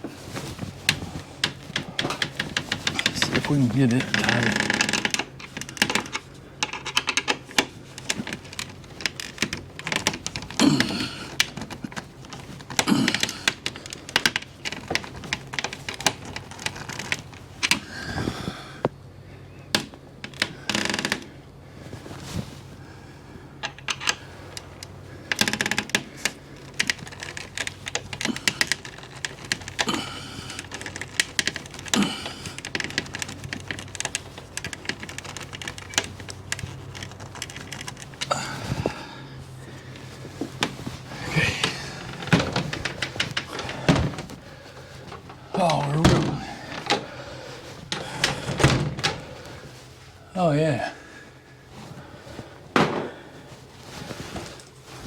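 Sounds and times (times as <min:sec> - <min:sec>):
small clicks and light knocks: 0:00.0 - 0:19.0, 0:23.6 - 0:39.0.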